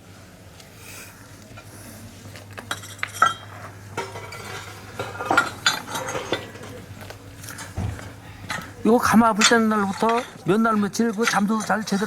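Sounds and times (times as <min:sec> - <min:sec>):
ceramic pieces clinking: 0:02.7 - 0:06.8.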